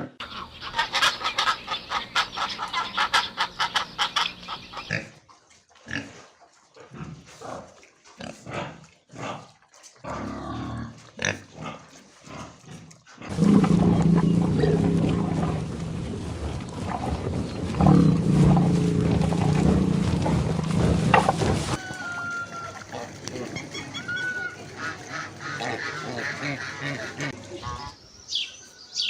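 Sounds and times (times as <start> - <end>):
animal grunting calls: 8.2 - 21.8, 22.4 - 28.0
animal long low calls: 13.3 - 21.6.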